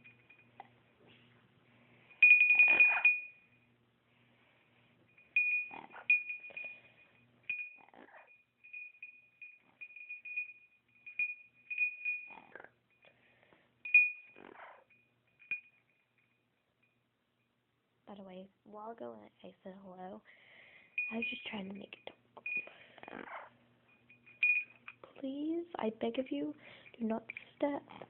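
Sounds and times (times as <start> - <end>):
small bell jingling: 0.0 - 0.7, 2.0 - 3.7, 5.1 - 13.1, 13.8 - 17.5, 20.9 - 25.1.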